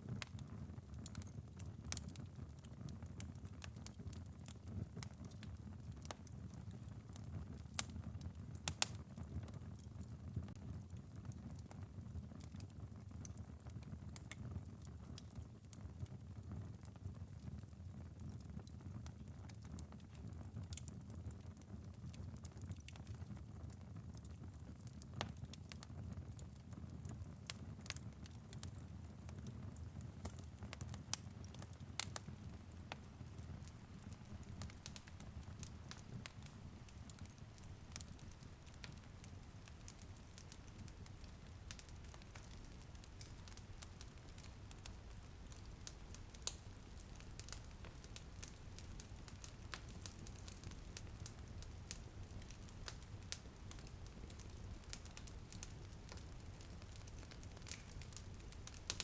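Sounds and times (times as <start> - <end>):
light rain on window: 0.0 - 59.0
wood fire crackling and popping: 0.0 - 59.0.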